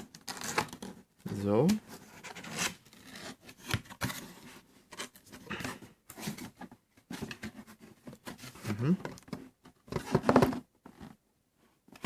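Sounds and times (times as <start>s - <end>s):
packaging scraping and rubbing: 0.0s - 1.0s, 1.8s - 6.6s.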